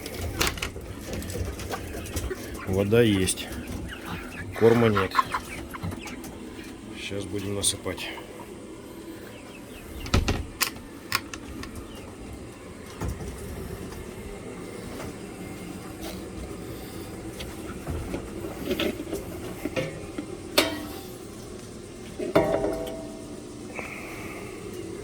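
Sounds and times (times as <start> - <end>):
feed containers knocking: 22.2 - 23.4.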